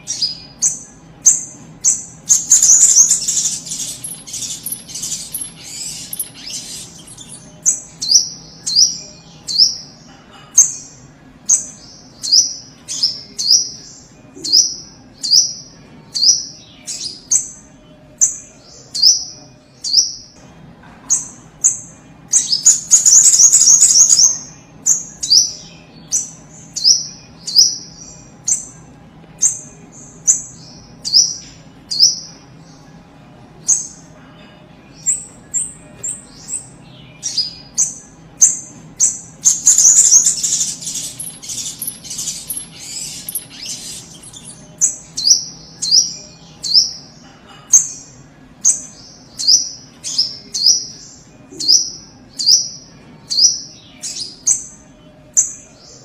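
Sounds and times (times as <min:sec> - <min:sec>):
loud rapid bird trill: 0:00.0 - 0:10.0, 0:21.2 - 0:28.8, 0:34.9 - 0:47.2.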